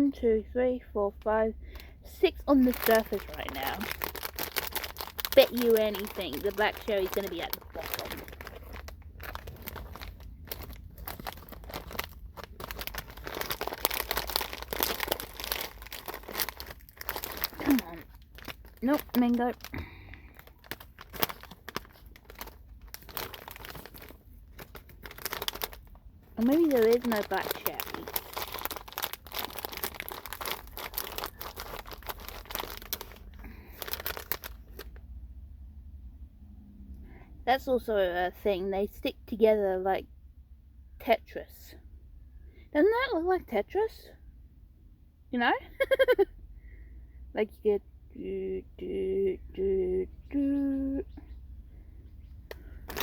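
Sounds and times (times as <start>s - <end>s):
plastic candy packet crinkling: 1.2s - 35.0s, 52.5s - 53.0s.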